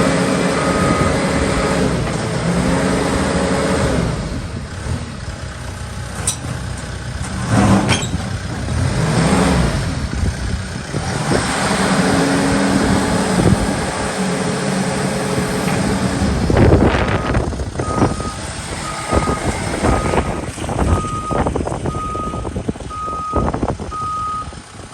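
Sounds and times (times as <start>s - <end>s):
diesel engine running and revving: 0.0s - 24.9s
reversing alarm beeps: 0.5s - 1.8s, 17.1s - 20.3s, 20.9s - 24.5s
metal clanks: 6.1s - 8.8s.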